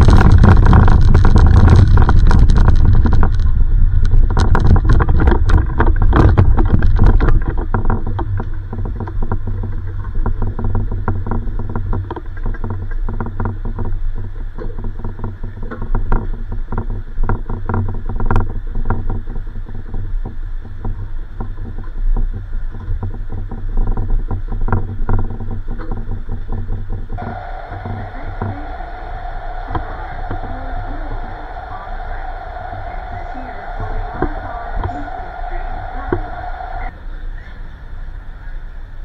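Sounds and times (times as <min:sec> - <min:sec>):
train car low rumble: 0:00.0 - 0:04.7, 0:27.1 - 0:39.0.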